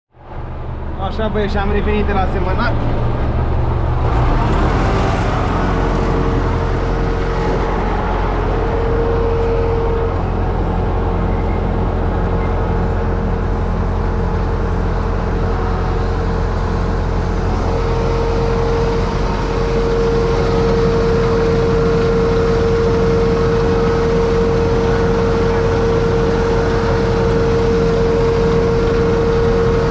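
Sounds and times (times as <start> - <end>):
high steady whine: 0.2 - 29.9
tractor diesel engine running: 0.2 - 29.9.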